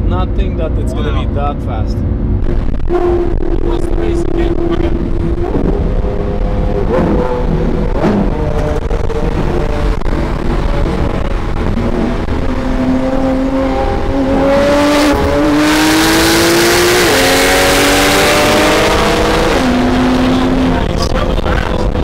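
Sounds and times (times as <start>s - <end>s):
car engine accelerating through gears: 0.0s - 22.0s.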